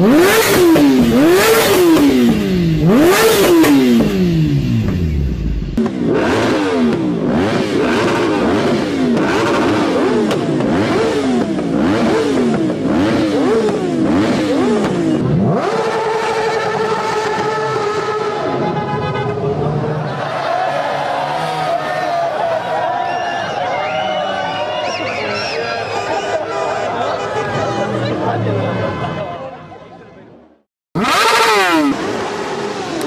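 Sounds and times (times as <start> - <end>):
motorcycle engine revving: 0.0 - 18.9, 31.0 - 33.0.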